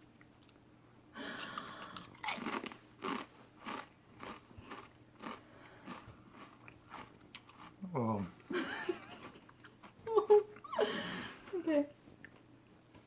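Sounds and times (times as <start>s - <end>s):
person chewing chips: 1.5s - 7.8s
potato chip crunching: 1.9s - 7.7s.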